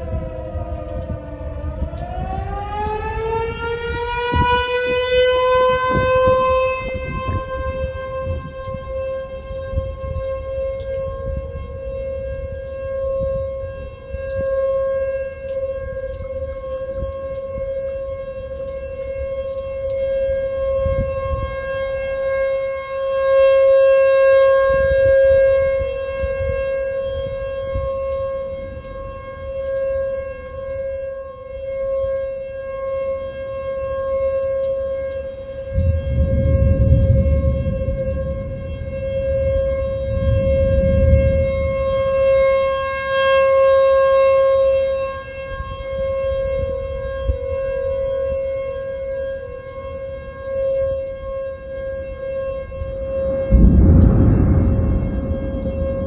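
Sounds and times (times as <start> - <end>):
warning siren wailing: 0.0 - 56.0.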